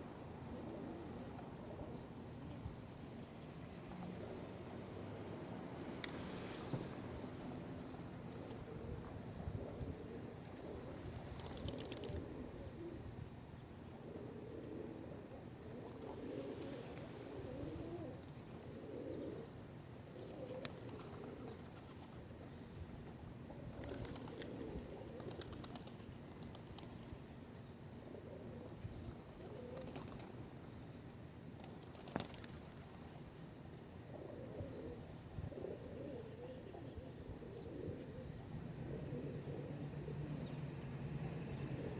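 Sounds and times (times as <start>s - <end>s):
pigeons cooing: 8.6s - 13.0s, 14.1s - 22.1s, 23.5s - 26.0s, 29.4s - 30.3s, 34.1s - 40.6s
wings flapping: 11.1s - 12.2s, 20.5s - 22.1s, 23.7s - 27.1s, 29.7s - 30.4s, 31.6s - 32.9s.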